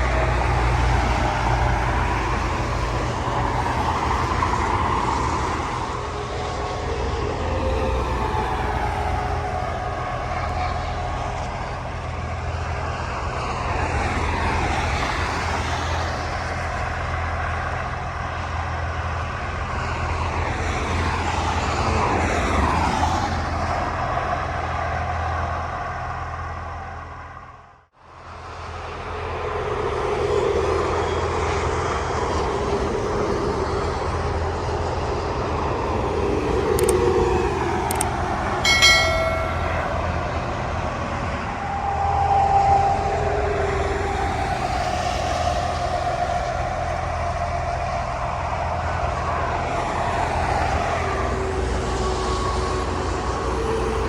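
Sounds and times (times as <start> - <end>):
road vehicles droning: 0.0 - 54.0
sharp clicks: 36.8 - 37.0.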